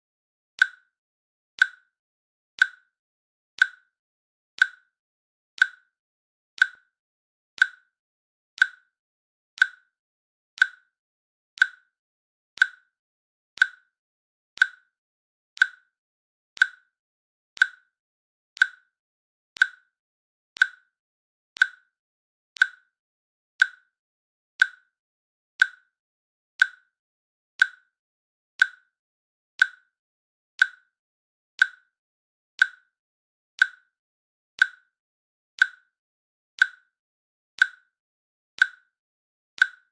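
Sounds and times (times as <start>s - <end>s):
timer clicking: 0.6s - 0.9s, 1.6s - 1.9s, 2.6s - 2.9s, 3.6s - 3.9s, 4.6s - 4.9s, 5.6s - 6.0s, 6.6s - 6.9s, 7.6s - 8.0s, 8.6s - 9.0s, 9.6s - 10.0s, 10.6s - 11.0s, 11.6s - 12.0s, 12.6s - 13.0s, 13.6s - 14.0s, 14.6s - 15.0s, 15.6s - 16.0s, 16.6s - 17.0s, 17.6s - 18.0s, 18.6s - 19.0s, 19.6s - 20.0s, 20.6s - 21.0s, 21.6s - 22.0s, 22.6s - 23.0s, 23.6s - 24.0s, 24.6s - 25.0s, 25.6s - 26.0s, 26.6s - 27.0s, 27.6s - 28.0s, 28.6s - 29.0s, 29.6s - 30.0s, 30.6s - 31.0s, 31.6s - 32.0s, 32.6s - 33.0s, 33.6s - 34.0s, 34.6s - 35.0s, 35.6s - 36.0s, 36.6s - 37.0s, 37.6s - 38.0s, 38.6s - 39.0s, 39.6s - 39.9s.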